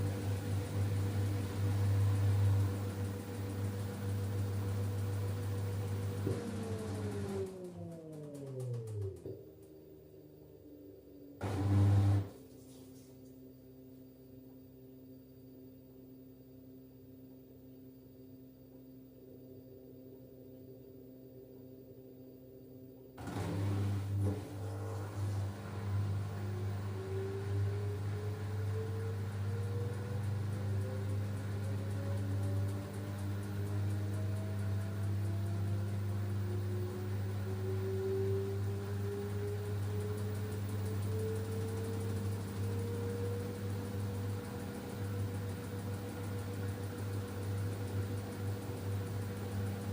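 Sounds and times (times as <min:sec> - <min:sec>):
washing machine motor hum and whine: 0:00.0 - 0:49.9.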